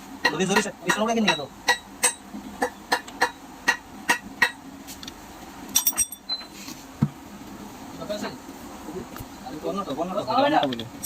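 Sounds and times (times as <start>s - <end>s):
hand tools clinking on metal: 5.7s - 6.4s.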